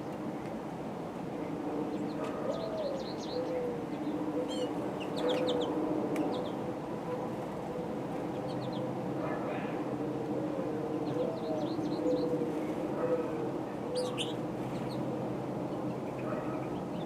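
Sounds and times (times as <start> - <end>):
small birds chirping: 2.0 - 6.6, 8.3 - 8.9, 14.0 - 15.1.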